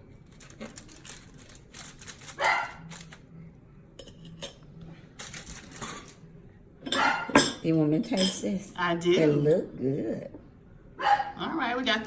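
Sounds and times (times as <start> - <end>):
dog barking: 2.4 - 2.9, 6.9 - 7.4, 11.0 - 11.4.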